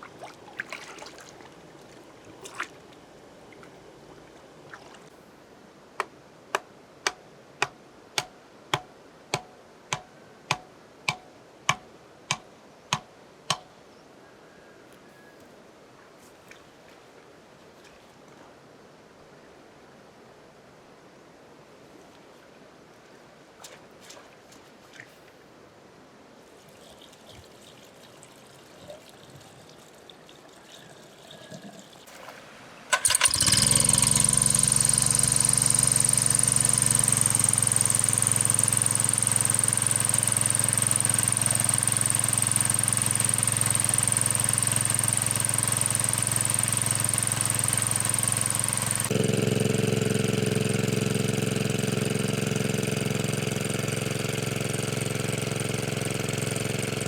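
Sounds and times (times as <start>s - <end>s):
small engine running: 32.9s - 57.0s.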